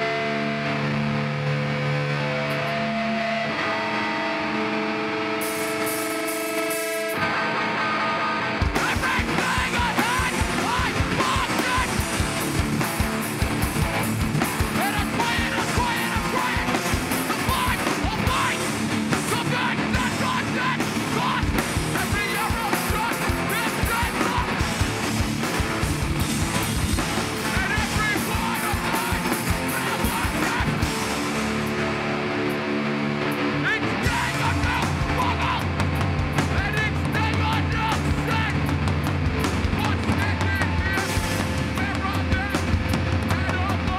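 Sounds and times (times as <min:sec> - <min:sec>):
distorted guitars: 0:00.0 - 0:43.9
fast pounding drums: 0:08.6 - 0:32.2, 0:33.2 - 0:43.9
shouted vocals: 0:08.7 - 0:12.2, 0:14.6 - 0:24.8, 0:27.4 - 0:31.0, 0:33.5 - 0:35.8, 0:36.5 - 0:38.6.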